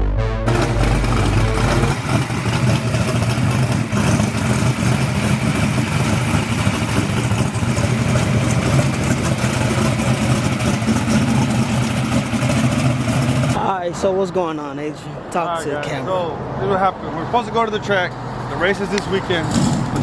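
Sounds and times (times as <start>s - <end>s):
vehicle engine running: 0.0s - 13.6s.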